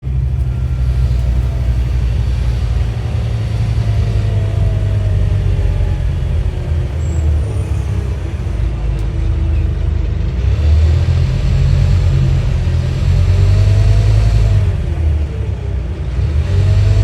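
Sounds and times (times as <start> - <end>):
bus engine deep drone: 0.0 - 17.0.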